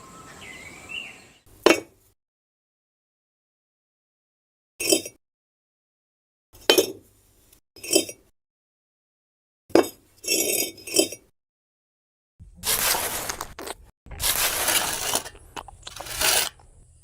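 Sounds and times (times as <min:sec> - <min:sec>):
small hard pieces clinking: 0:14.3 - 0:16.6.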